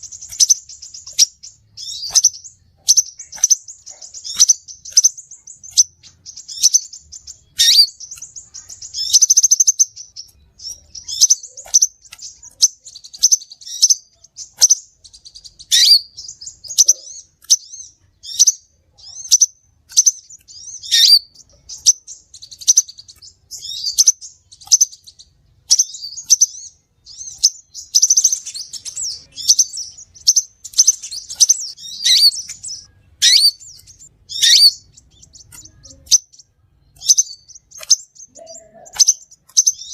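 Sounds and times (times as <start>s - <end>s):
bird chirping and trilling: 0.0s - 39.9s.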